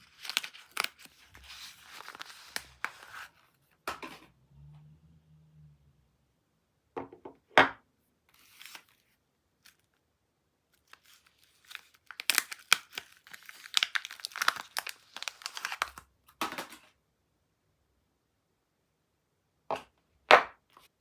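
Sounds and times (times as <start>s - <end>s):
packaging tearing and crinkling: 0.0s - 3.4s, 10.8s - 16.0s.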